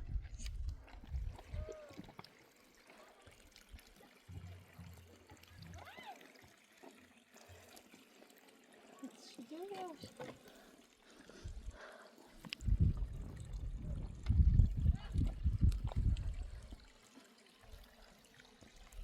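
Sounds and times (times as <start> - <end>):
water trickling and pouring: 0.0 - 19.0
low rumble: 12.7 - 16.4.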